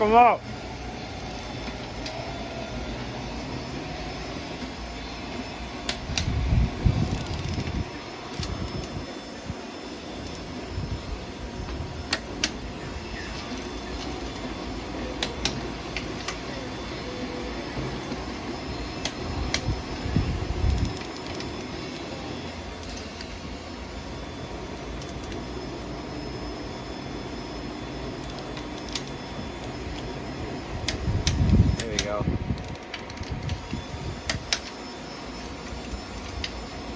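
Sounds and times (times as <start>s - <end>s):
fan running: 0.0s - 36.9s
sharp clicks: 5.8s - 6.4s, 15.2s - 16.4s, 30.9s - 34.8s.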